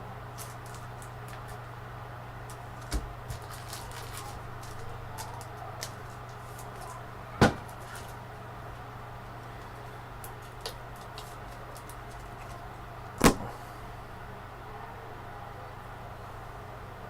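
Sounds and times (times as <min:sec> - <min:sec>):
steady low hum: 0:00.0 - 0:17.0
cards clicking and rustling: 0:00.4 - 0:01.7, 0:02.4 - 0:08.2, 0:09.3 - 0:13.5.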